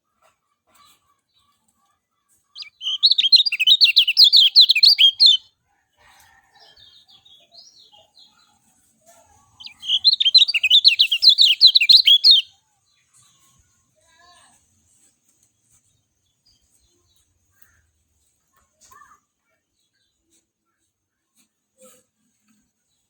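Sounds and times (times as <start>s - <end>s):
bird twittering song: 2.6s - 5.4s, 9.6s - 12.5s
soft bird chips: 2.6s - 5.4s, 9.6s - 12.4s.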